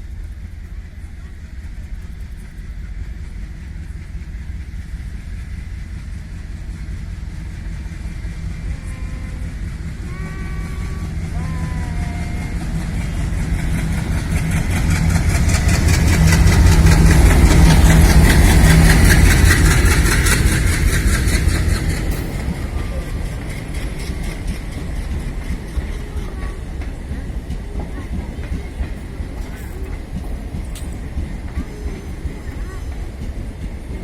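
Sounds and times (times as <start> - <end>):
locomotive engine drone: 0.0 - 34.0
train wheels clattering on rails: 0.0 - 34.0.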